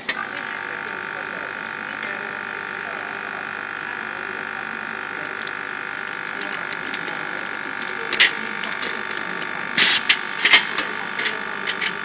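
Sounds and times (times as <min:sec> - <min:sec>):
high steady machine tones: 0:00.0 - 0:12.0.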